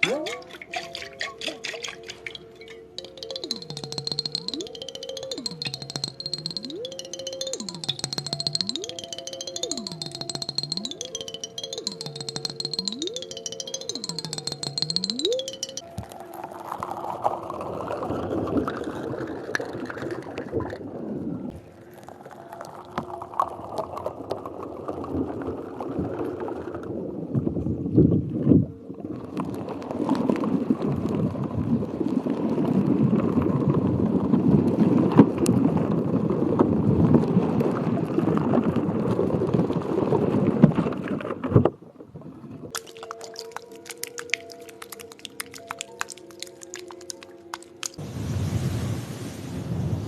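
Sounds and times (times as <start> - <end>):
water gurgling and sloshing: 0.0 - 4.8, 36.5 - 49.4.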